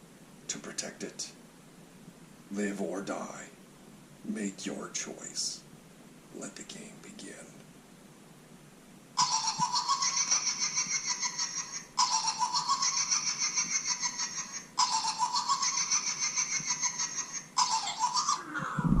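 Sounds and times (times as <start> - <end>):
cackling laugh: 9.2 - 19.0.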